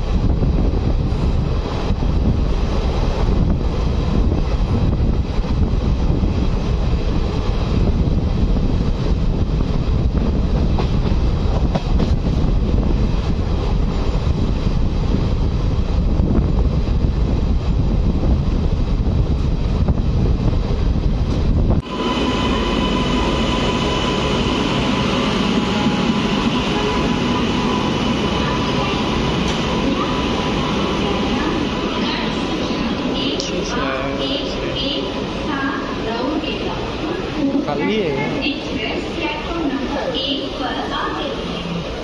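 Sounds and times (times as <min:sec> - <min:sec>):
train wheels rumbling and rattling: 0:00.0 - 0:42.0
steady high whine: 0:21.1 - 0:40.4.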